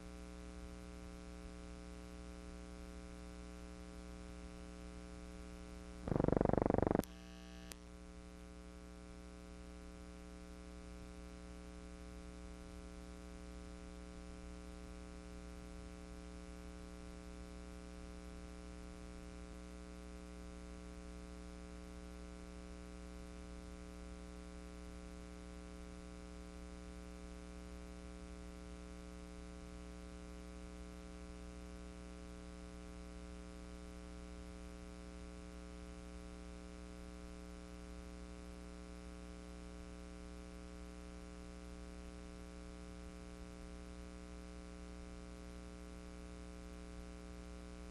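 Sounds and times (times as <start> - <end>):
electrical hum: 6.0 - 7.9.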